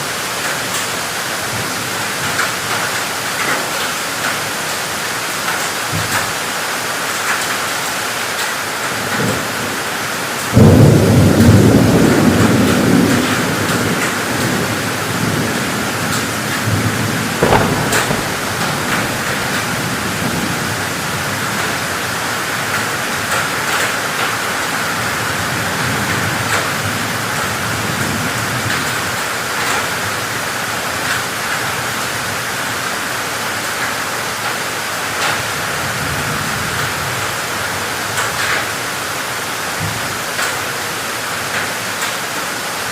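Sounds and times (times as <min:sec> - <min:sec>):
heavy rain pouring: 0:00.0 - 0:42.9
sharp thunder crack: 0:10.6 - 0:21.3
low thunder rumble: 0:10.6 - 0:21.9.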